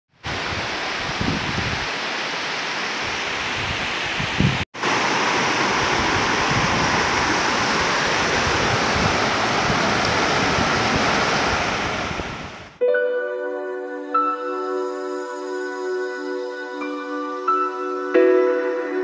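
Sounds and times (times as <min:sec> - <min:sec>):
wind buffeting microphone: 0:00.2 - 0:01.9, 0:03.0 - 0:12.8
river water rushing over rocks: 0:04.8 - 0:12.6.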